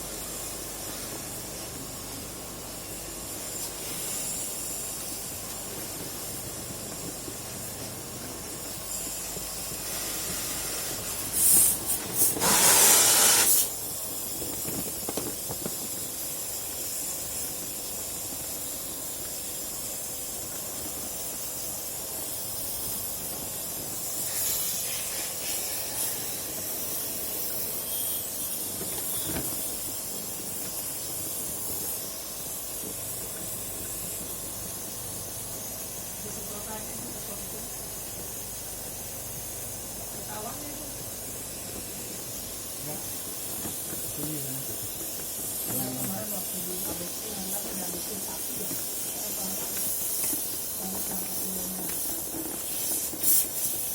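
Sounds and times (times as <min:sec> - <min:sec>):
spray jet hissing: 0:09.8 - 0:14.3, 0:42.2 - 0:53.9.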